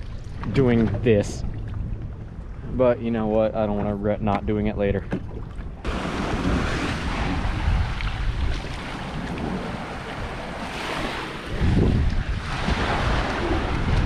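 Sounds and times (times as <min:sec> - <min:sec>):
wind buffeting microphone: 0:00.0 - 0:14.0
sea water rushing and splashing: 0:05.1 - 0:14.0.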